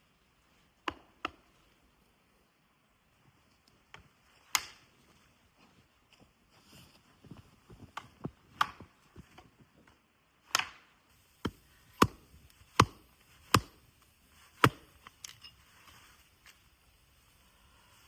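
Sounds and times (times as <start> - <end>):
wood chopping strikes: 11.4 - 15.4.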